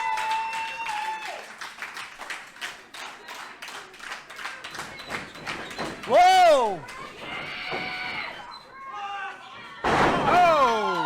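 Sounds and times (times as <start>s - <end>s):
crowd clapping: 0.0s - 7.2s.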